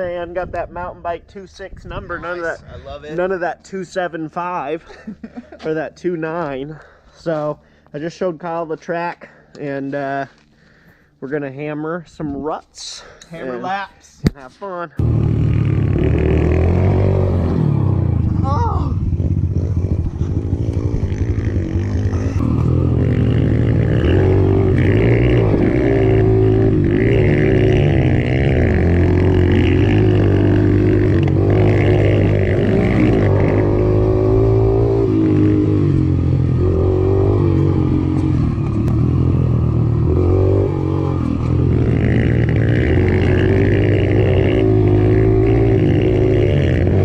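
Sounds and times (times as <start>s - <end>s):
mini moto engine revving: 15.0s - 47.0s.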